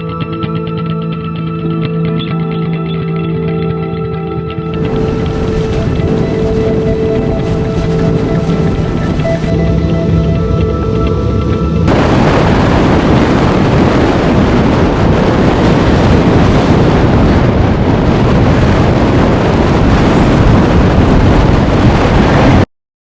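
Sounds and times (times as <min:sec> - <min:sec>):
blizzard wind buffeting microphone: 0:04.7 - 0:22.7.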